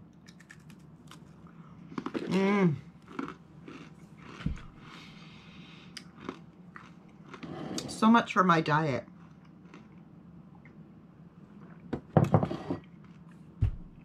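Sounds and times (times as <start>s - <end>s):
crunchy chewing of cracker: 0.2s - 5.2s, 5.8s - 7.9s, 9.0s - 10.1s.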